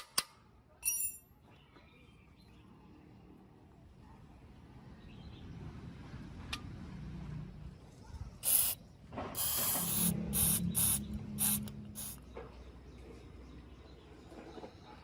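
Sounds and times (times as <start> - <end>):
aerosol spray can hissing: 8.4 - 8.8, 9.4 - 12.2.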